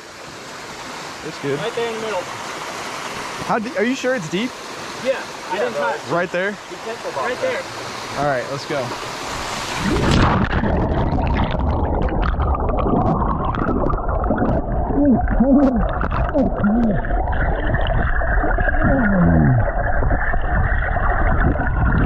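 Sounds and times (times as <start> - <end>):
underwater rumble and gurgling: 9.2 - 22.0
muffled wavering tones: 9.8 - 22.0.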